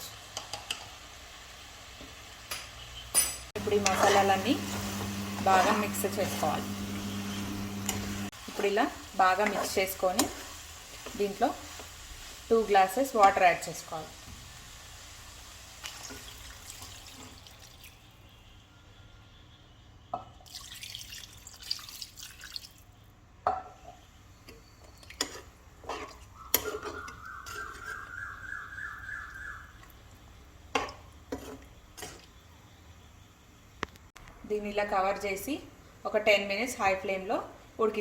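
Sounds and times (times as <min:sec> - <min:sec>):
water pouring into vessel: 0:20.4 - 0:22.8.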